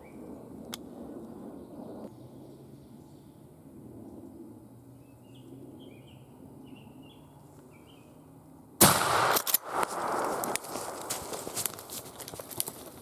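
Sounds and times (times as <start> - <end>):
shotgun blast: 8.8 - 11.8.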